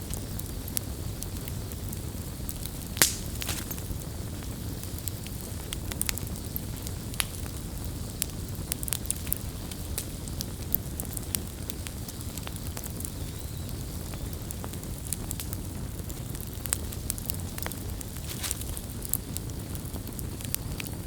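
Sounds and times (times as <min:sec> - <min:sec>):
burning wood crackling and popping: 0:00.0 - 0:21.0
campfire flames rumbling: 0:00.0 - 0:21.0.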